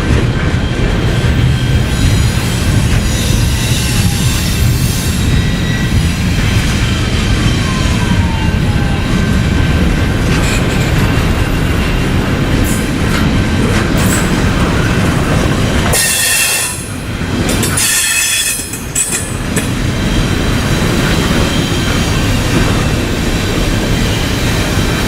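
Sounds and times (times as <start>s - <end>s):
freight train rolling on rails: 0.0s - 25.0s
train wheels squealing: 0.6s - 9.0s, 15.9s - 22.8s.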